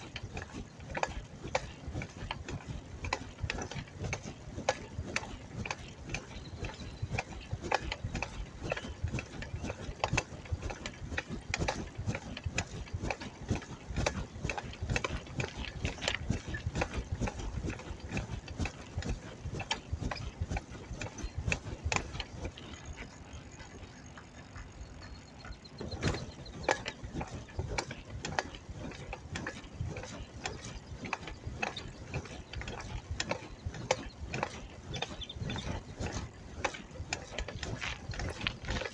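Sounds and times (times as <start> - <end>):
bicycle clicking and rattling: 0.0 - 38.9.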